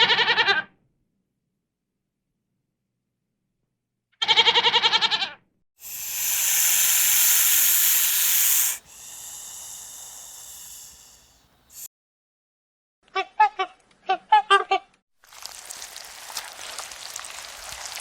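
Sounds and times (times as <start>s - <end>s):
loud hiss: 5.8s - 11.9s.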